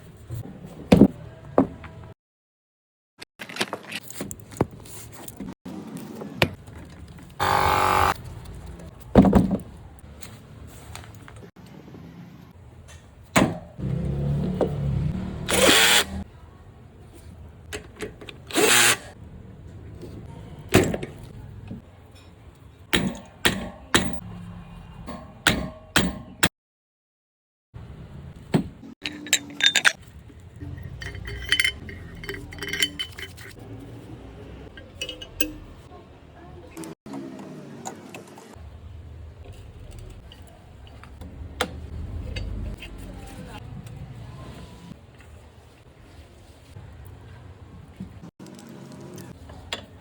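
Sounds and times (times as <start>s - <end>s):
metal parts knocking and clicking: 29.0s - 33.6s, 34.8s - 35.8s.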